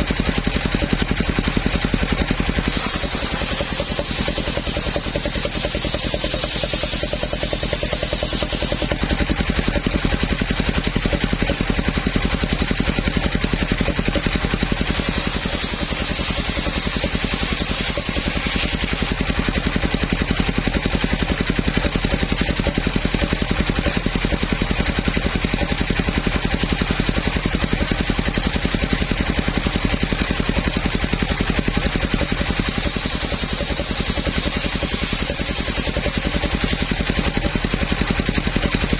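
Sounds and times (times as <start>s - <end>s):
sawmill engine running: 0.0s - 38.9s
high hiss: 2.7s - 8.8s.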